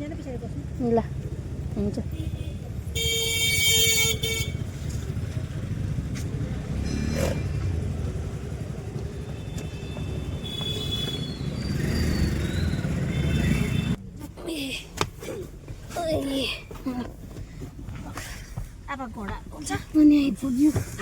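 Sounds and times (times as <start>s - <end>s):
rumble of engines and tyres: 0.0s - 21.0s
higher horn toots: 2.1s - 4.8s, 9.1s - 12.0s
vehicle horn honking: 2.1s - 4.8s, 9.2s - 11.7s, 12.9s - 14.0s.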